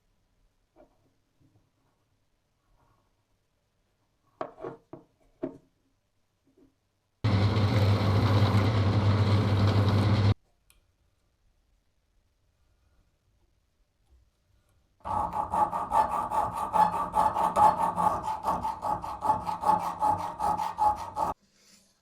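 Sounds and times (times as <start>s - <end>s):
power tool running: 7.3s - 10.4s.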